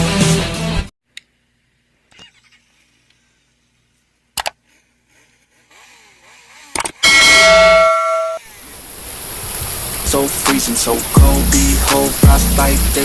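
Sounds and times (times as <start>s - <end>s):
bell-like metallic strike: 7.0s - 8.4s.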